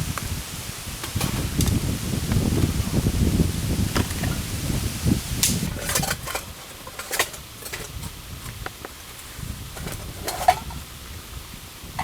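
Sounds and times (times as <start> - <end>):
campfire crackling: 0.0 - 9.3.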